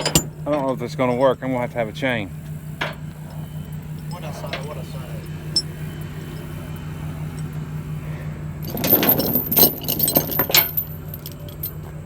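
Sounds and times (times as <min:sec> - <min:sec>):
engine idling: 0:00.0 - 0:12.0
steel chain rattling and clinking: 0:08.6 - 0:11.9.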